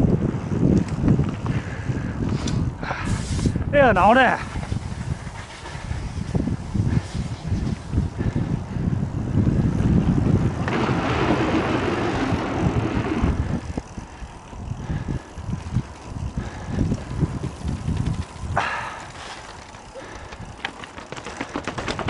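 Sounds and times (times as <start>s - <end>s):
wind buffeting microphone: 0.0s - 22.0s
tyres hissing on rough surface: 3.0s - 3.6s.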